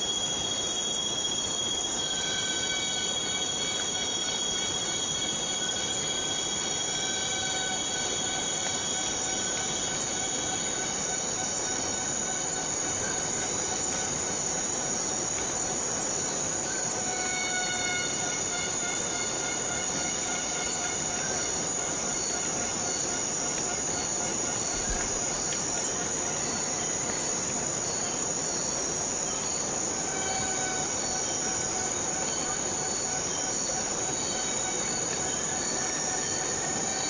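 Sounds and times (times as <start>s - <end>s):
insects buzzing high tones: 0.0s - 37.0s
rain on foliage: 7.4s - 37.0s.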